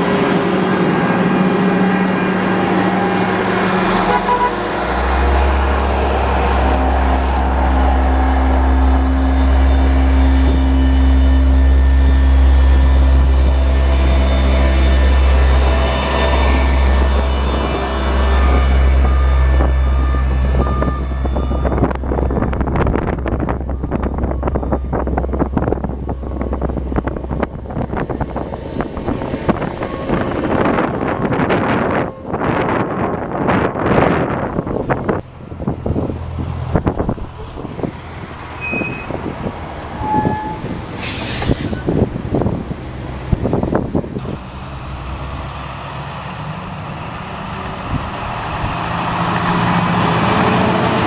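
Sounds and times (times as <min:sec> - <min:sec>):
heavy truck engine running: 0:00.0 - 0:51.0
reversing alarm beeps: 0:17.0 - 0:25.4
thin high squeals: 0:38.4 - 0:41.9.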